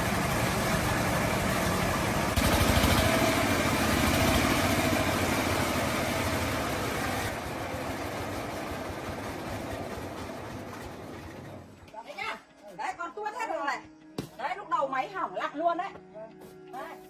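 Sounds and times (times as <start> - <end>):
diesel engine idling: 0.0 - 11.8.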